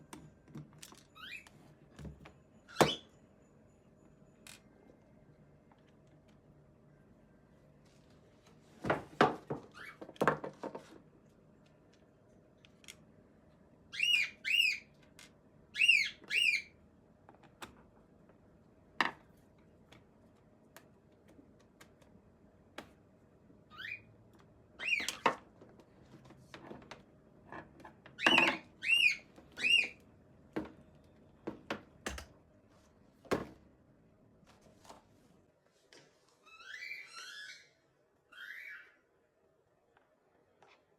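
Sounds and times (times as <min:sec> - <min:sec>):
high chirping squeaks: 0:01.1 - 0:01.7, 0:02.6 - 0:03.2, 0:09.7 - 0:10.0, 0:13.9 - 0:14.9, 0:15.8 - 0:16.7, 0:23.7 - 0:24.1, 0:24.8 - 0:25.2, 0:28.2 - 0:30.0, 0:36.4 - 0:39.0.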